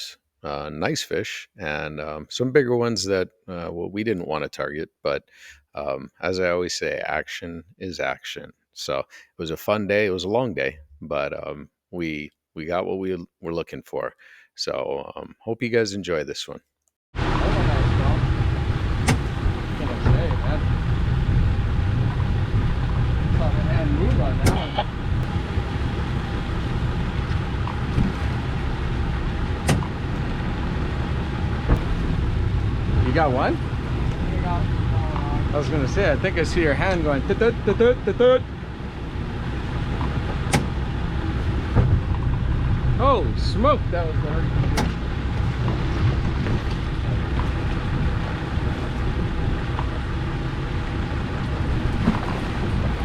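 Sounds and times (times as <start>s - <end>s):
boat motor rumbling: 17.2s - 53.0s
water noise: 17.2s - 53.0s
wind: 17.2s - 53.0s
sharp click: 19.1s - 19.4s.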